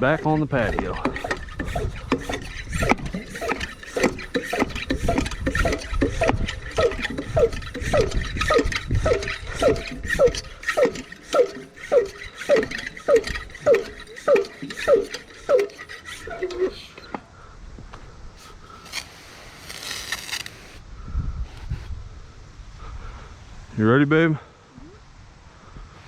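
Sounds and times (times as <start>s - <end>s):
hand pump squeaky hiss: 0.0s - 17.2s, 18.4s - 20.8s.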